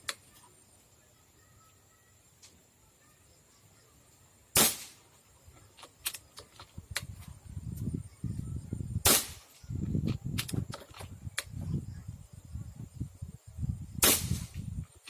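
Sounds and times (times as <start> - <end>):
air rifle shots: 4.5 - 5.1, 9.0 - 9.6, 14.0 - 14.6.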